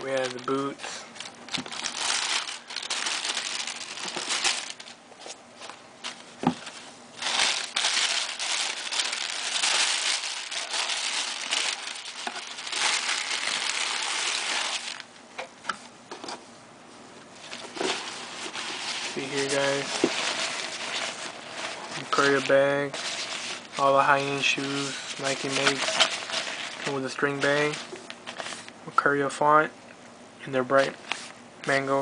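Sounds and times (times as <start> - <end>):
packaging crinkling: 0.0 - 15.1, 17.5 - 28.8.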